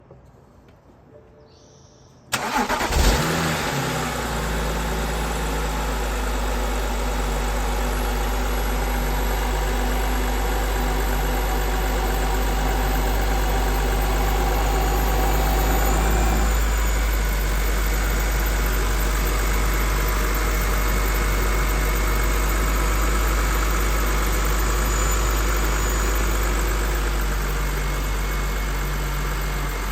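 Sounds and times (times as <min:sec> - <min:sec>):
starter motor cranking: 0:02.3 - 0:03.7
car engine idling: 0:02.4 - 0:29.9.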